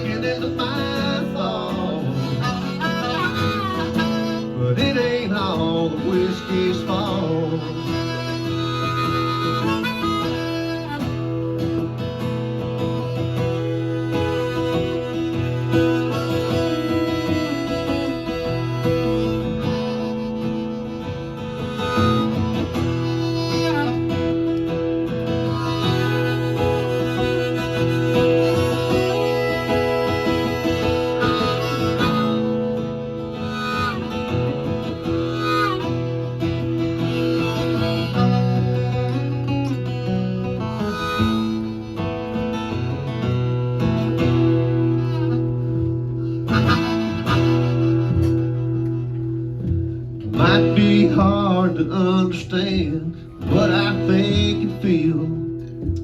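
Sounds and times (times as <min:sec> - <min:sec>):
acoustic guitars strumming chords: 0:00.0 - 0:56.0.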